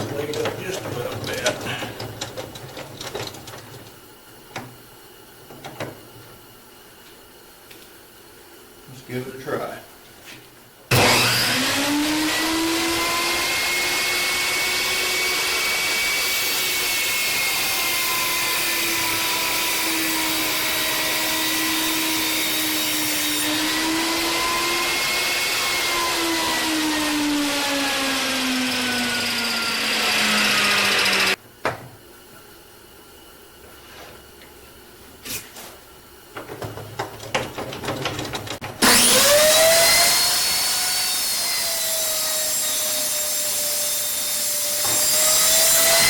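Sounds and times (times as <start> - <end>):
table saw cutting wood: 10.9 - 31.4, 38.8 - 46.0.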